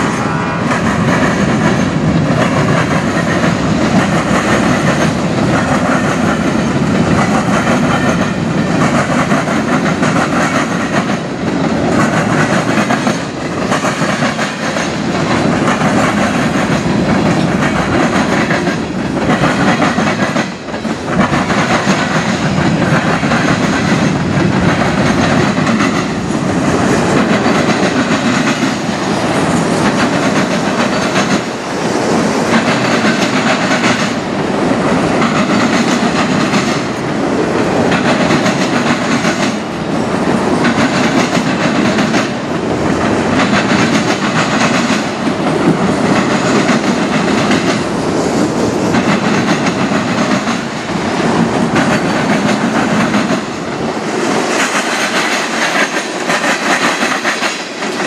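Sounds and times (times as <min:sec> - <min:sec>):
freight train wheels rolling: 0:00.0 - 0:58.0
wheels clacking over rail joints: 0:00.6 - 0:58.0.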